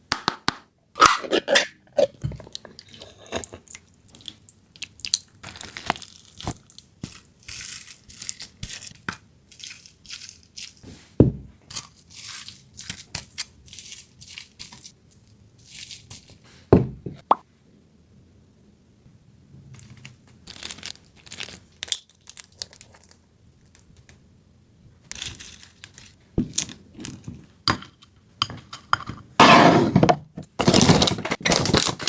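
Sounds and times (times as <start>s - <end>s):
small crunches tearing and clicks: 19.8s - 24.2s.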